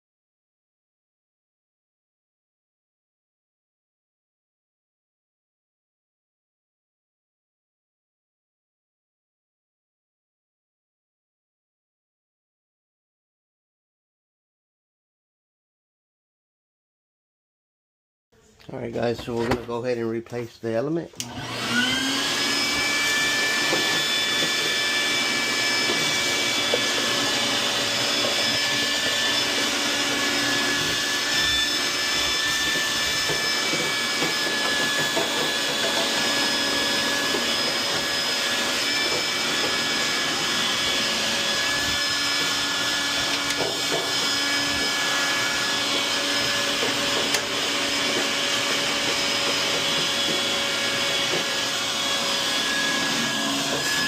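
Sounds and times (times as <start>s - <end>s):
electric motor whining: 21.2s - 54.0s.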